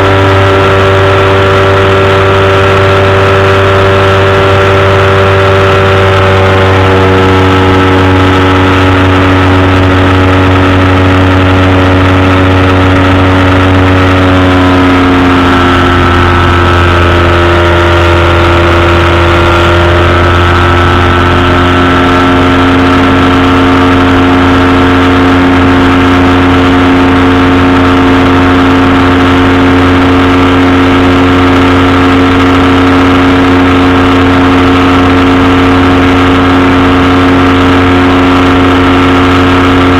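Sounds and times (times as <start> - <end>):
engine and propeller droning: 0.0 - 39.9.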